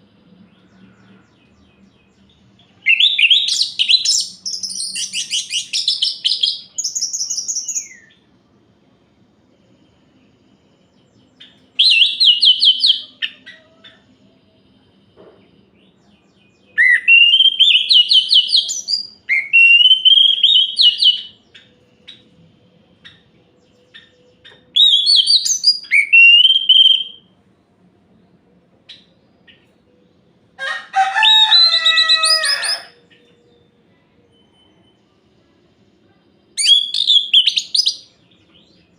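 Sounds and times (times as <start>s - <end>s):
thrush whistled song: 2.8s - 8.2s, 11.7s - 13.2s, 16.7s - 21.4s, 23.9s - 27.3s, 36.5s - 38.8s
harsh bird call: 30.6s - 33.2s.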